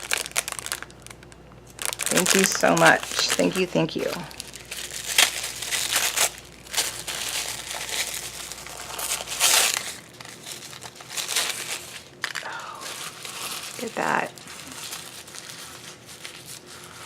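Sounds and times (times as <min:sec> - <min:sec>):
packaging crinkling: 0:00.0 - 0:17.0.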